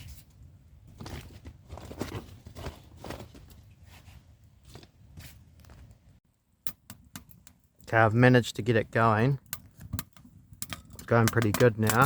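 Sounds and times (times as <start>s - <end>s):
kindling snapping and knocking: 9.5s - 12.0s.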